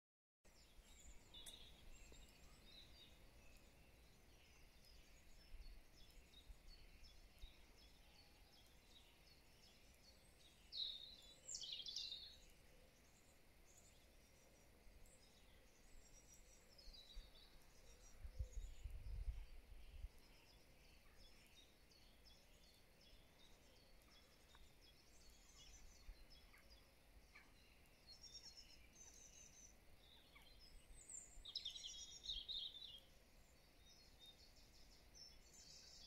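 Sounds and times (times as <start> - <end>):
faint birdsong: 0.5 - 36.0.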